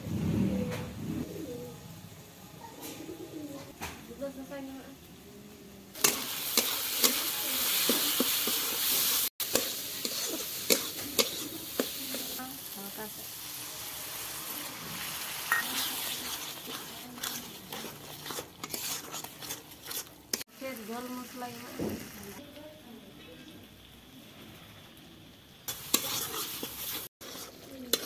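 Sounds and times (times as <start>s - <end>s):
sauce sizzling in a wok: 4.3s - 28.0s
metal spatula scraping a pan: 6.0s - 12.4s, 14.9s - 20.5s, 25.7s - 28.0s.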